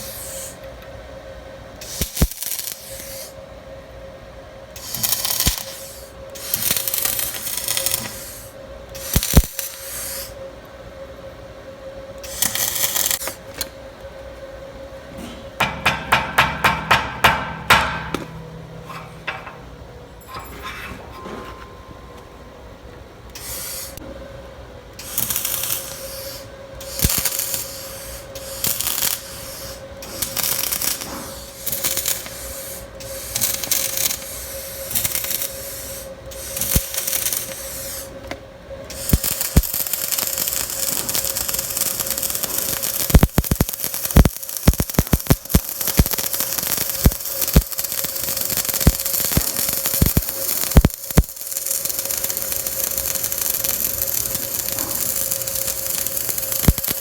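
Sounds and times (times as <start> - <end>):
welding arc hiss: 0.0 - 0.7, 1.8 - 3.4, 4.7 - 10.4, 12.2 - 13.7, 15.6 - 18.4, 23.3 - 24.0, 25.0 - 57.0
crackling weld with pops: 1.8 - 3.3, 4.8 - 8.2, 8.9 - 9.9, 12.2 - 14.1, 15.6 - 18.4, 25.0 - 35.6, 36.3 - 57.0.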